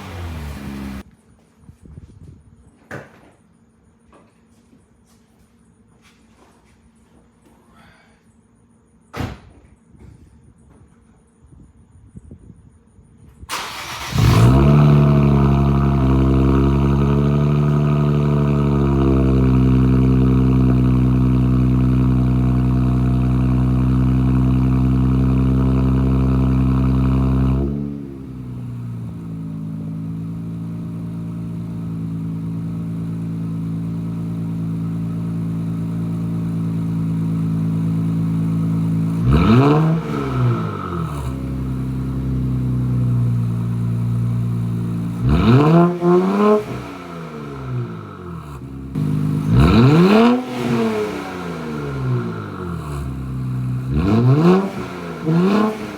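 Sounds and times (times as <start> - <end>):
car engine starting and idling: 0.0 - 1.0, 13.5 - 55.9
engine revving: 0.0 - 1.0, 13.5 - 55.9.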